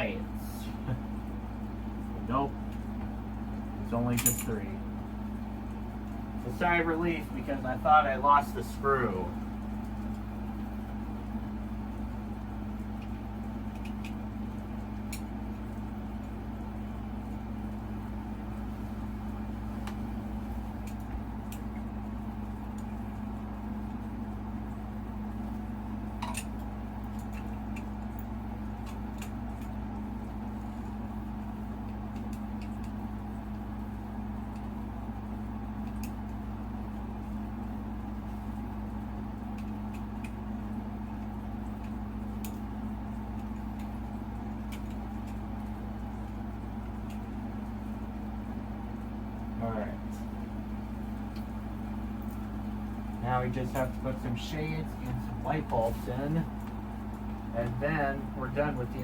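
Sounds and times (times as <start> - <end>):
steady low hum: 0.0 - 59.0
small parts clicking and clinking: 4.2 - 4.6.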